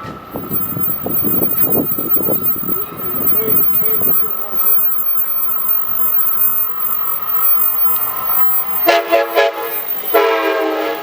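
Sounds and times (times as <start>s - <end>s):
locomotive horn blasts: 8.9s - 11.0s.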